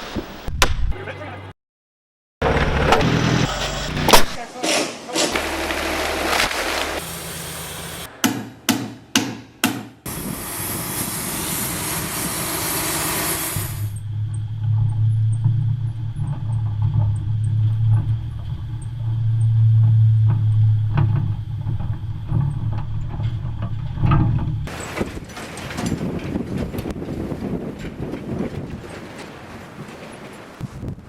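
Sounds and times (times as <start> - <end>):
engine running: 2.4 - 4.5, 5.3 - 8.2, 10.1 - 26.7
sharp knocks: 8.2 - 10.1
hiss: 10.1 - 14.0.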